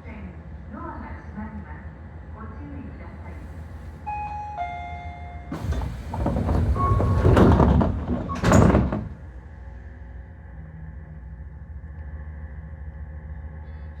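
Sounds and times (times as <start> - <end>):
train doors closing rush: 3.5 - 9.7.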